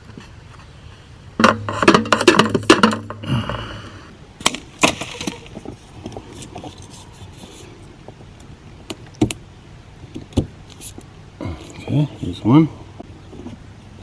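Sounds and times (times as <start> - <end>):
plumbing tools clattering and clinking: 1.4 - 3.3.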